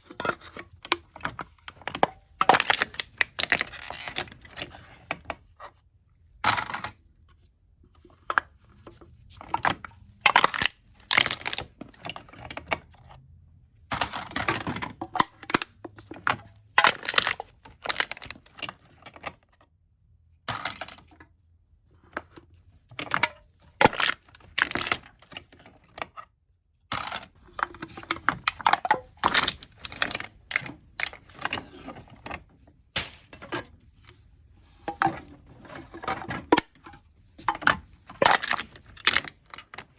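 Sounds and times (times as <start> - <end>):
aluminium cans being crushed: 0.0 - 4.7, 6.4 - 7.0, 9.6 - 12.7, 13.9 - 18.8, 20.5 - 21.1, 23.0 - 25.5, 26.9 - 31.6, 37.5 - 39.9.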